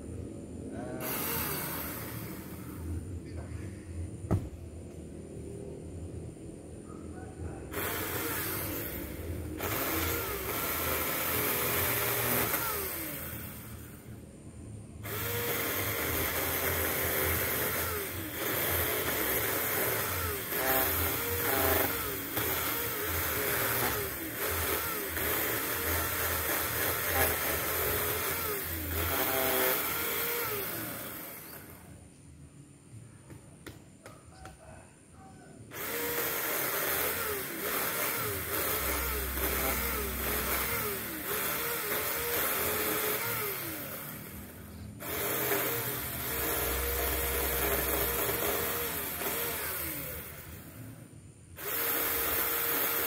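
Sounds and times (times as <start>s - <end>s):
mini chainsaw cutting wood: 1.0s - 3.0s, 7.7s - 14.0s, 15.0s - 32.0s, 35.7s - 50.9s, 51.6s - 53.0s.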